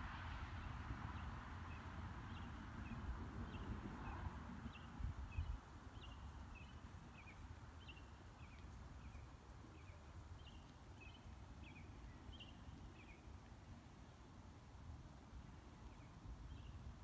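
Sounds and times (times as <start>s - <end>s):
small birds chirping: 2.3s - 13.4s.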